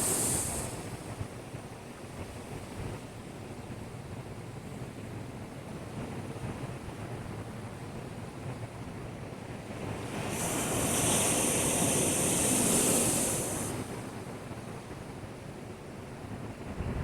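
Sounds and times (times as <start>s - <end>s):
surf against a breakwater: 0.0s - 17.0s
large wave breaking: 9.7s - 14.3s.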